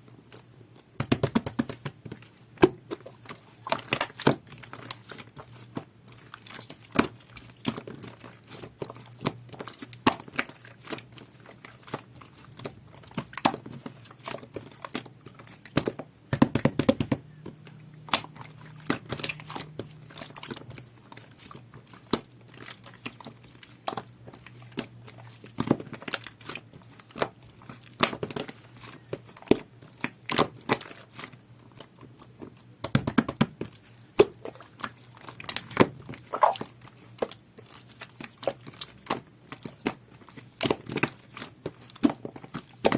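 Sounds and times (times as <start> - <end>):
slime squished by hand: 36.3 - 36.7.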